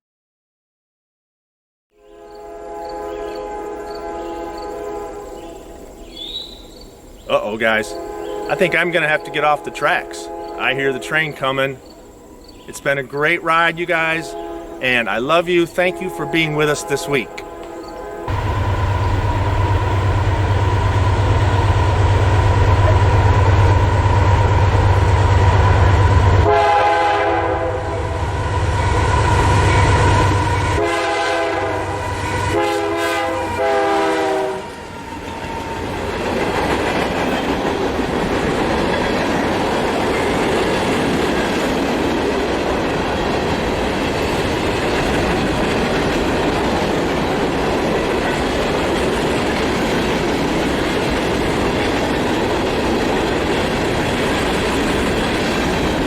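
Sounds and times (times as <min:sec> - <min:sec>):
train horn blasts: 0:01.9 - 0:05.8, 0:07.8 - 0:12.4, 0:13.7 - 0:35.8
train rumbling: 0:02.3 - 0:56.0.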